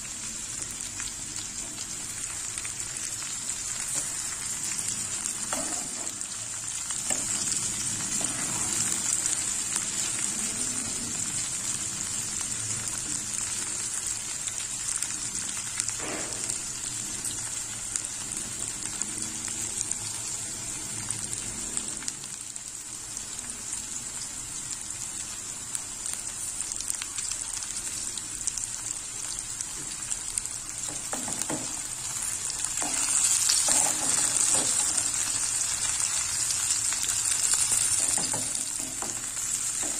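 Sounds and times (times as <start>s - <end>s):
okra sizzling in a pan: 0.0s - 39.9s
metal spatula scraping a pan: 32.8s - 35.2s.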